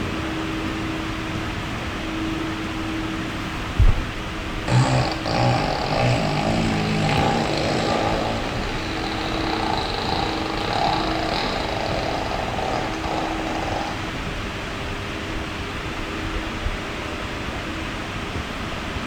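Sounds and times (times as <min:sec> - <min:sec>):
machine humming: 0:04.7 - 0:14.3.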